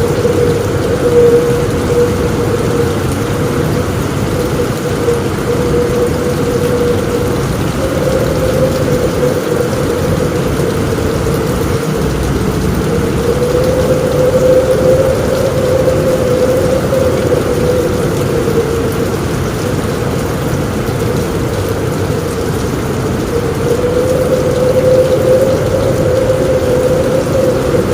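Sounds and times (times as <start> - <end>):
heavy rain drumming on a roof: 0.0 - 27.9
low rumble: 0.0 - 27.9
strong wind: 0.0 - 27.9.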